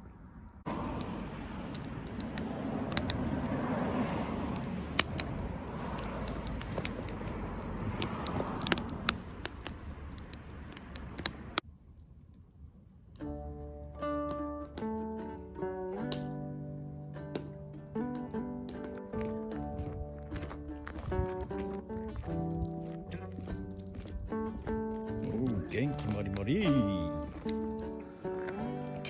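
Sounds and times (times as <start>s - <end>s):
wood fire popping and crackling: 0.6s - 28.8s
flame hissing: 0.7s - 11.6s.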